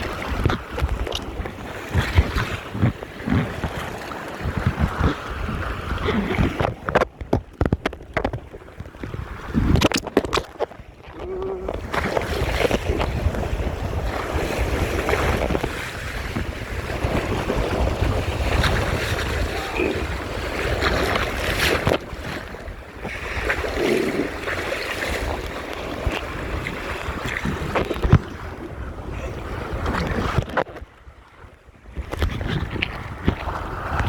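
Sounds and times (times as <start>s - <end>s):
water splashing along hull: 0.0s - 34.0s
wind buffeting microphone: 0.0s - 34.0s.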